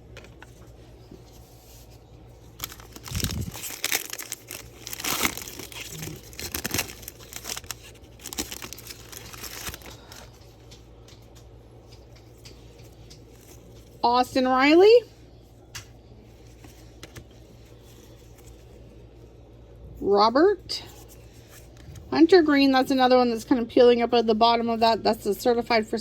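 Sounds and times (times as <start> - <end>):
foil wrapper tearing and crinkling: 2.6 - 10.4.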